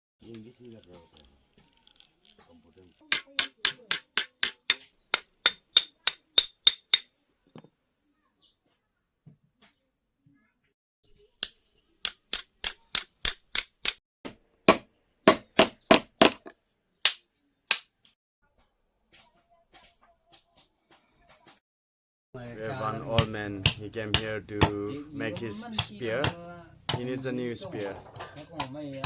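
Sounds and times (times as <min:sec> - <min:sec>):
hammer striking metal: 0:03.1 - 0:07.7, 0:23.1 - 0:27.2.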